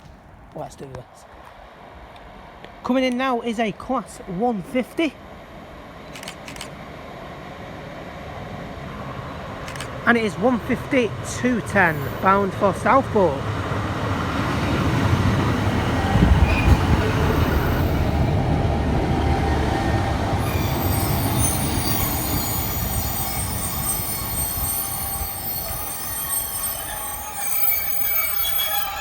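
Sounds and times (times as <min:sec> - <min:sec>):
train engine and wheels rumbling: 0:00.0 - 0:29.0
high brake squeal: 0:16.1 - 0:18.1, 0:20.4 - 0:29.0.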